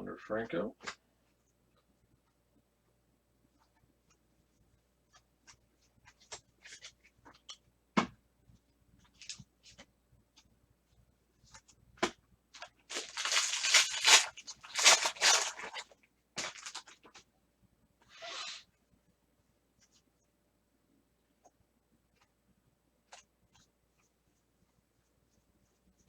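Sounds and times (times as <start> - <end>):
wrapper tearing and rustling: 12.9 - 17.1.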